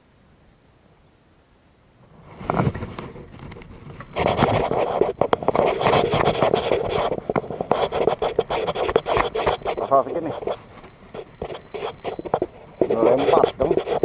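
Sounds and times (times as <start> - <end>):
sharp clicks and slaps: 7.4 - 9.7.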